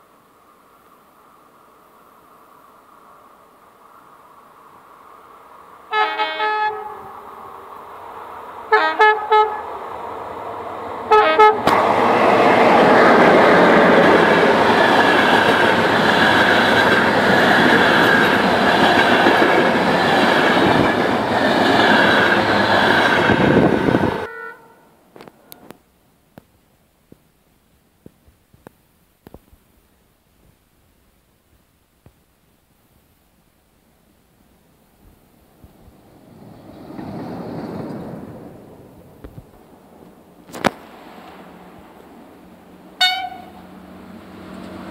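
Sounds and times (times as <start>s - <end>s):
passenger train passing: 0.0s - 25.8s, 35.5s - 44.9s
locomotive two-tone horn blasts: 5.9s - 7.1s, 8.7s - 9.7s, 11.1s - 11.7s, 24.0s - 25.7s, 43.0s - 43.7s.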